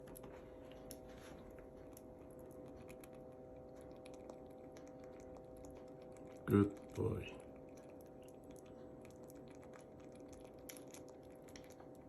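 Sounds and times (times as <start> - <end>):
faint light clicks and taps: 0.0 - 3.0
steady hum: 0.0 - 12.0.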